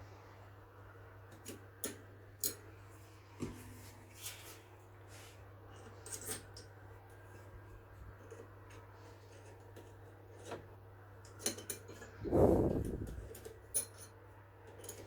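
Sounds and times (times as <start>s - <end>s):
steady low hum: 12.0s - 13.8s.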